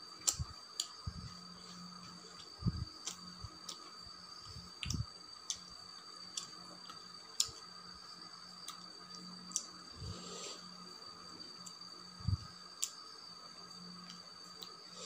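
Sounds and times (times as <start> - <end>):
person chewing with lip-smacks: 0.2 - 5.7, 6.3 - 7.7.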